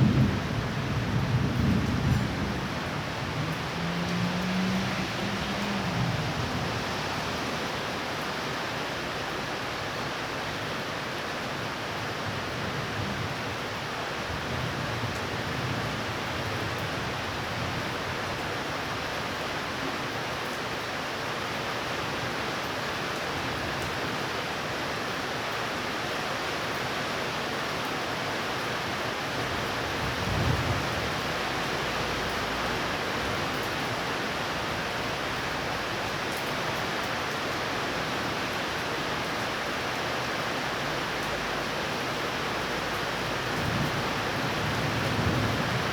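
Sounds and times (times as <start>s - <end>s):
steady rain: 0.0s - 45.9s.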